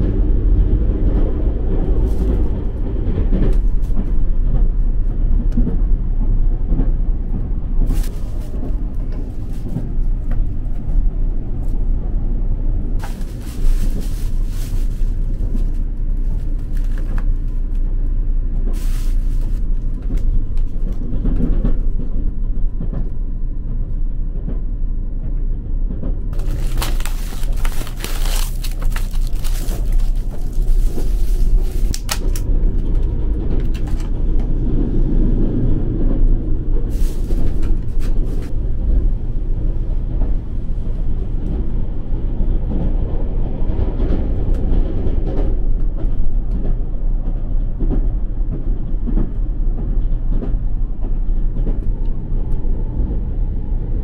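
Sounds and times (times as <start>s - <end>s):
train low rumble: 0.0s - 54.0s
plastic bag rustling: 7.9s - 10.3s, 13.0s - 17.8s, 18.7s - 20.3s, 26.4s - 32.4s, 36.9s - 38.5s.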